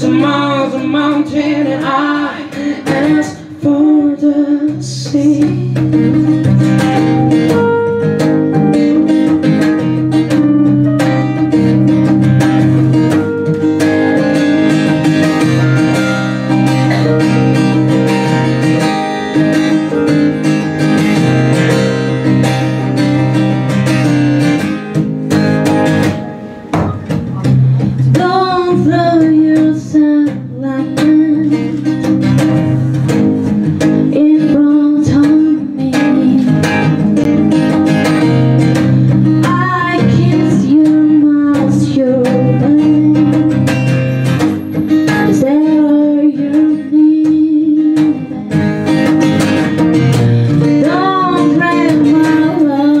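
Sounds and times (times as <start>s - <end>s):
acoustic guitar strumming: 0.0s - 53.0s
held melody line: 0.0s - 53.0s.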